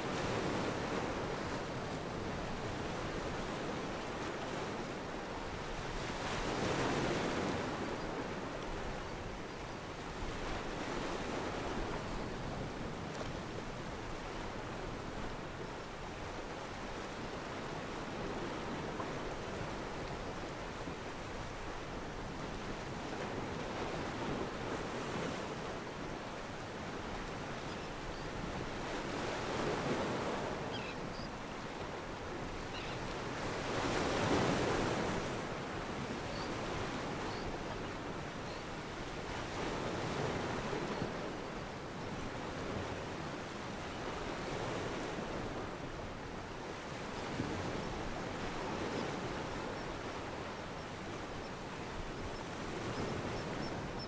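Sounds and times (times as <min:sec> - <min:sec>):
wind and water rushing: 0:00.0 - 0:54.0.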